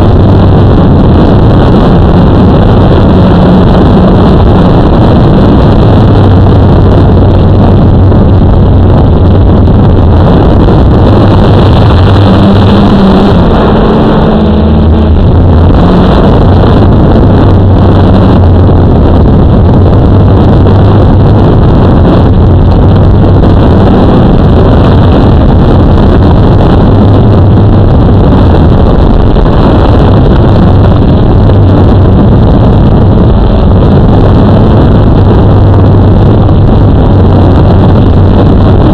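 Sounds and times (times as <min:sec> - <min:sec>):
wind noise: 0:00.0 - 0:38.9.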